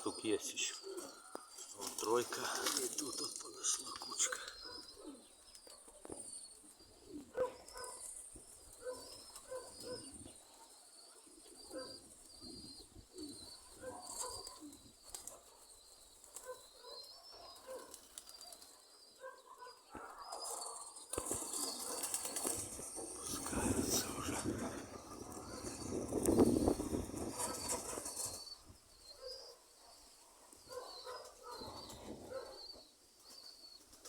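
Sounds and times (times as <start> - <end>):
pigeons cooing: 0.0 - 34.0
small birds chirping: 0.0 - 34.0
wind noise: 22.5 - 28.3.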